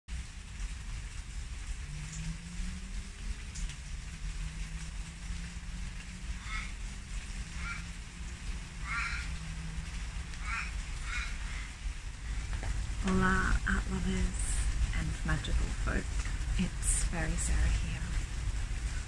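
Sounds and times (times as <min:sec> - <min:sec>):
low steady hum: 0:00.1 - 0:19.0
rain falling: 0:00.1 - 0:19.0
bird calls: 0:06.3 - 0:07.0, 0:07.6 - 0:08.0, 0:10.4 - 0:11.8.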